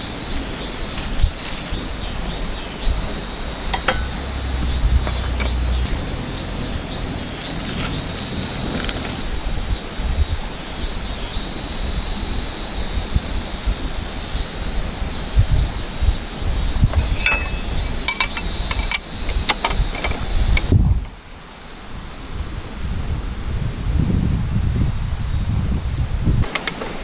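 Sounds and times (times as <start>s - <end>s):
steady rushing noise: 0.0s - 20.8s
cicada singing in pulses: 0.0s - 22.8s, 25.1s - 27.0s.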